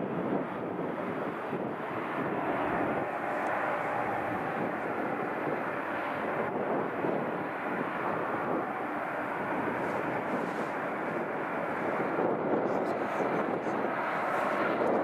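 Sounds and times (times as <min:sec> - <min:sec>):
airliner engine rushing: 0:00.0 - 0:15.0.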